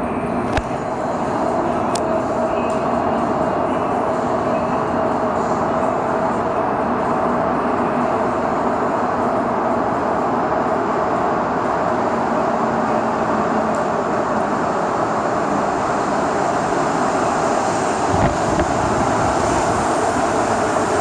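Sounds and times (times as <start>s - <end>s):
train rumble and hiss: 0.0s - 21.0s.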